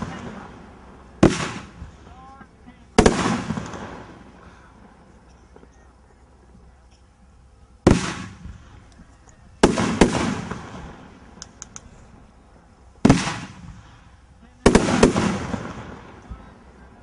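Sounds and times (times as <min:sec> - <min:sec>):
firework bangs: 0:00.0 - 0:02.2, 0:03.0 - 0:04.4, 0:07.8 - 0:08.7, 0:09.6 - 0:11.4, 0:13.0 - 0:16.3
faint firework crackles: 0:00.0 - 0:07.2, 0:07.8 - 0:12.2, 0:13.0 - 0:17.0.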